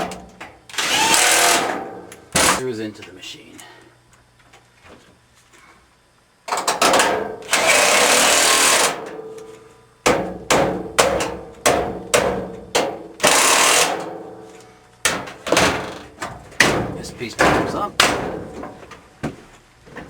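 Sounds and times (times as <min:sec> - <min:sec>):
power screwdriver driving screw: 0:00.7 - 0:01.6, 0:13.2 - 0:13.9.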